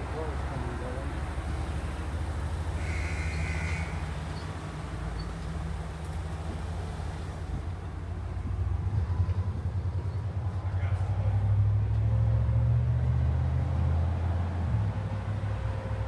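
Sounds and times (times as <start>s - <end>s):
motor vehicles rumbling: 0.0s - 16.0s.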